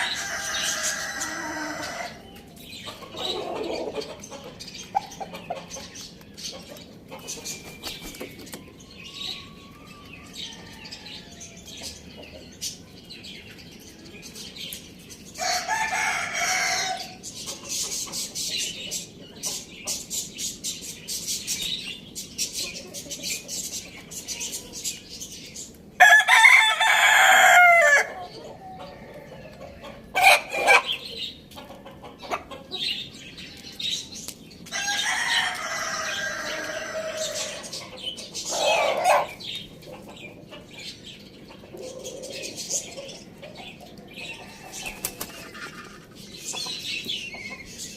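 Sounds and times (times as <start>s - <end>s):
rooster crowing: 0.0s - 2.3s, 15.4s - 17.2s, 26.0s - 29.3s, 34.7s - 37.7s
birds chirping: 0.0s - 47.9s
chickens clucking: 0.0s - 47.9s.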